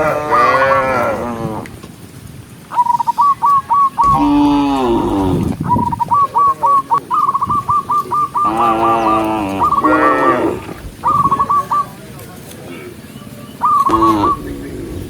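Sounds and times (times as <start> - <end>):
cattle mooing: 0.0 - 1.7, 4.0 - 5.6, 8.4 - 10.8, 13.9 - 15.0
high repeated chirping: 2.8 - 9.9.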